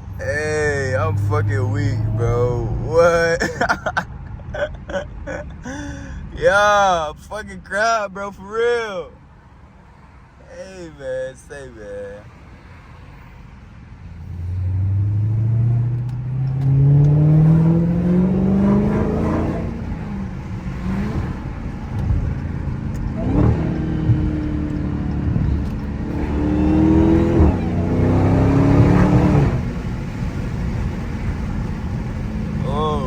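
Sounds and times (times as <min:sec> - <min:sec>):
car engine accelerating hard: 0:00.0 - 0:05.9, 0:14.1 - 0:33.0.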